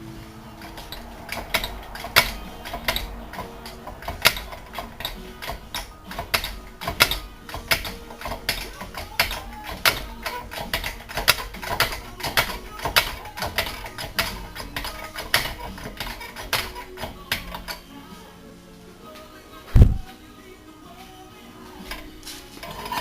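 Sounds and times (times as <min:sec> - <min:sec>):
hand tools knocking on metal: 0:00.6 - 0:17.8.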